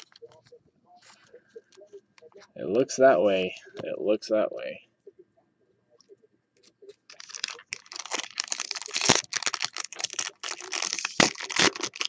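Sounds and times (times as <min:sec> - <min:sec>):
foil wrapper crinkling: 0:07.1 - 0:12.0.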